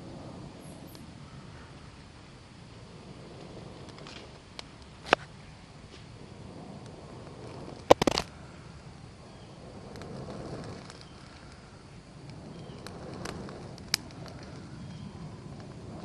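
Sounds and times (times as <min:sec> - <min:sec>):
sharp crack of fire: 0:00.0 - 0:16.0
small fire crackling: 0:00.0 - 0:16.0
faint pops: 0:07.7 - 0:08.4.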